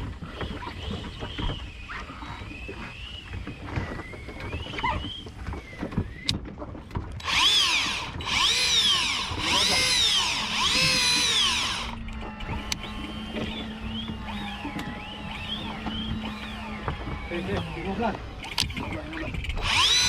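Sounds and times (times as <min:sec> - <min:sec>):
fishing reel motor whining: 0:07.1 - 0:20.0.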